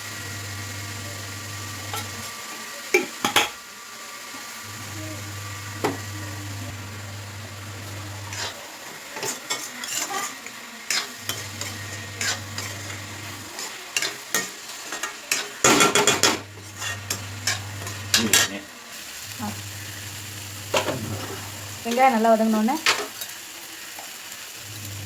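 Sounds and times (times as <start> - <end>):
vegetables sizzling in a pan: 0.0 - 25.0
spatula scraping a pan: 0.7 - 2.4, 4.3 - 18.7.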